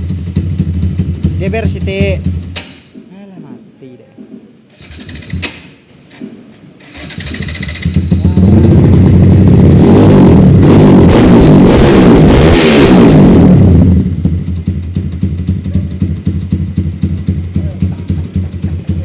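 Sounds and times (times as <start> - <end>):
motorcycle engine revving: 0.0 - 2.7, 4.8 - 19.0.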